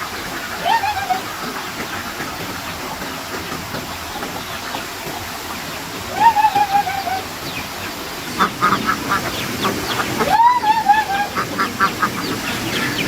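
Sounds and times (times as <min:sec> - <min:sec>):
drawn-out rising and falling call: 0:04.3 - 0:13.0.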